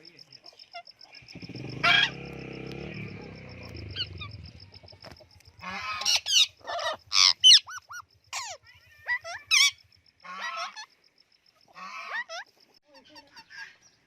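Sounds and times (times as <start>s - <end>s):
parrot squawking: 1.8s - 2.2s, 5.6s - 9.8s.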